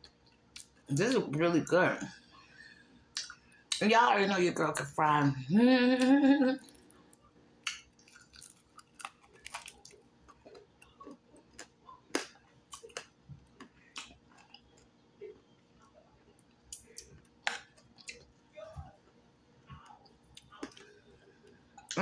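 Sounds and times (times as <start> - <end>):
woman speaking: 0.9 - 2.2, 3.8 - 6.6
crunchy chewing: 6.6 - 18.4, 19.6 - 22.0.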